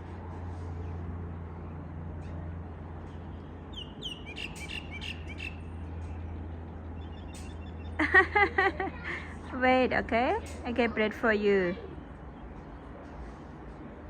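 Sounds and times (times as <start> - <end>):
high thin bird chirps: 3.7 - 6.2.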